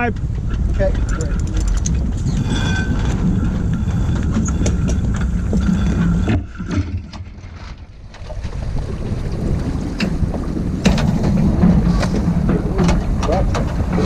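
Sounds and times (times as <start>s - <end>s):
wind buffeting microphone: 0.0s - 14.0s
gear clicking and knocking: 0.1s - 7.3s.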